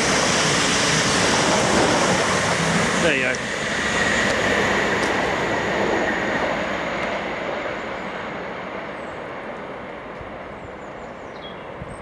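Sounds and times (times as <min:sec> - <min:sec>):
train rail and wheel noise: 0:00.0 - 0:12.0.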